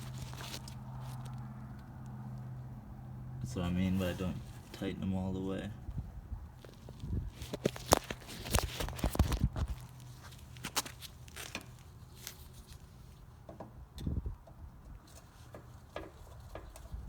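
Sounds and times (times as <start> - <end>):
hands clicking and knocking housing: 13.4 - 17.0.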